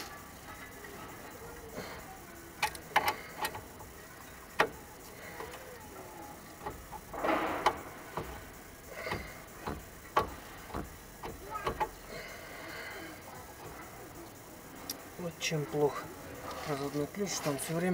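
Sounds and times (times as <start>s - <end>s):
wrench clicking and knocking on metal: 2.6s - 3.7s, 9.0s - 12.0s.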